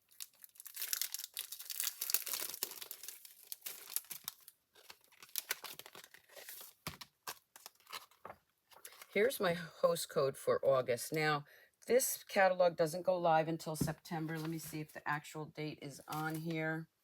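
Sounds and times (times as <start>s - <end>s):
paper crinkling and rustling: 0.0s - 9.2s, 16.1s - 16.6s.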